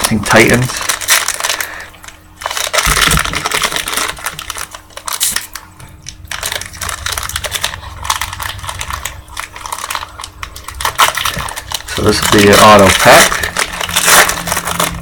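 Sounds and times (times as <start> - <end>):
wrapper tearing and crinkling: 0.0 - 15.0.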